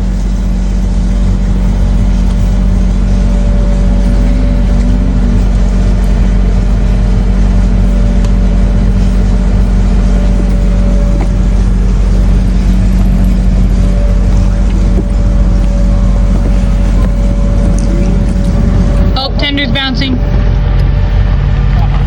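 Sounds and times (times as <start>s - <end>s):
loud low rumble: 0.0s - 22.0s
miniature train humming: 0.0s - 22.0s.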